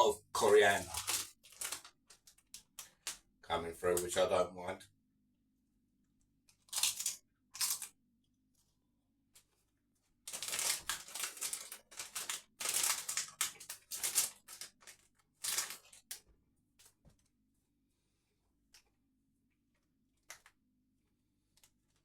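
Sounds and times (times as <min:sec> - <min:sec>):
crisps being crunched: 0:00.4 - 0:03.2, 0:06.7 - 0:07.9, 0:10.3 - 0:16.2.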